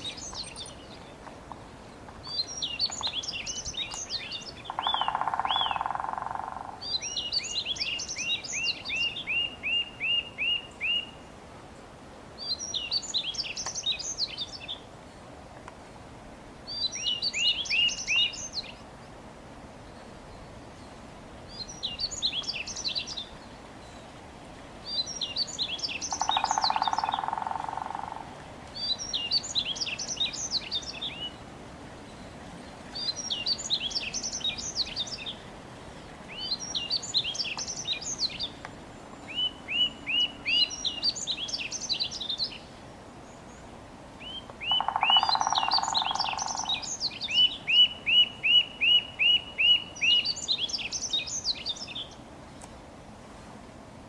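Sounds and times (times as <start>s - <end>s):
songbirds singing: 0.0s - 15.3s, 16.6s - 24.2s, 24.8s - 52.8s
steady background hiss: 0.0s - 54.0s
low buzzy bird call: 24.9s - 31.4s.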